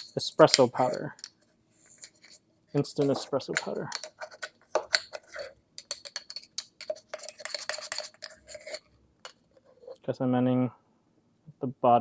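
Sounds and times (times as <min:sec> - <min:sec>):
spoon clinking and scraping in jar: 0:00.0 - 0:10.0.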